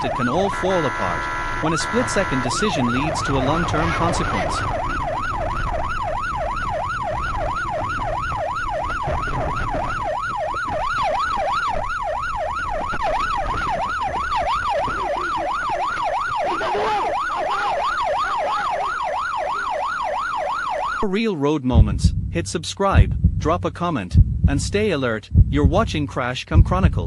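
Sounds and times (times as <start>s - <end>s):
police siren yelping: 0.0s - 21.1s
low rumble: 21.7s - 27.0s.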